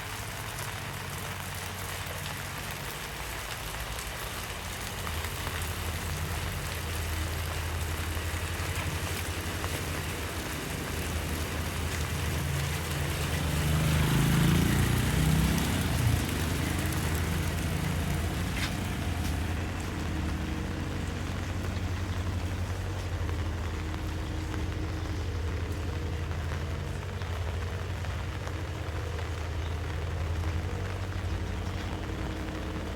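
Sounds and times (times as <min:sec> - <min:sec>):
steady rain falling: 0:00.0 - 0:32.9
vehicle engine running: 0:00.0 - 0:32.9.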